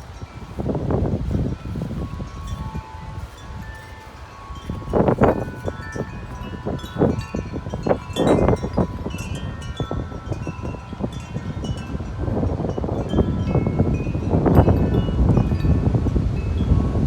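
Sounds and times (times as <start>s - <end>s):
wind buffeting microphone: 0.0s - 17.0s
wind chimes ringing: 0.0s - 17.0s.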